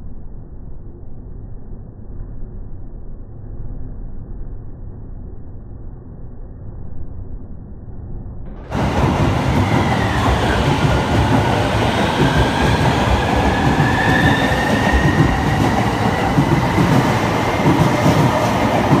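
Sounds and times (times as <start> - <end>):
high-pitched squeal: 8.6 - 19.0
train rumbling on rails: 8.6 - 19.0.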